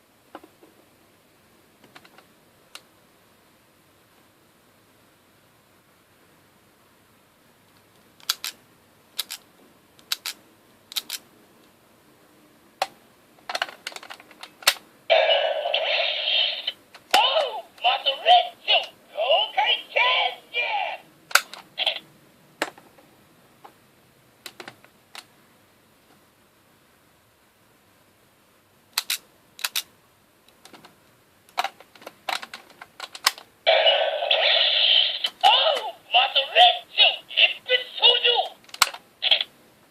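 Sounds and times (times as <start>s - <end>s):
hard plastic toy clicks: 8.2s - 8.6s, 9.2s - 9.4s, 10.0s - 11.2s, 29.0s - 29.9s
plastic toy clicks and snaps: 8.2s - 8.6s, 9.2s - 9.4s, 10.0s - 11.2s, 12.8s - 14.8s, 21.3s - 21.6s, 28.9s - 29.9s, 31.5s - 33.5s, 38.7s - 39.5s
sustained toy sound: 15.1s - 21.0s, 21.8s - 22.0s, 33.7s - 39.5s.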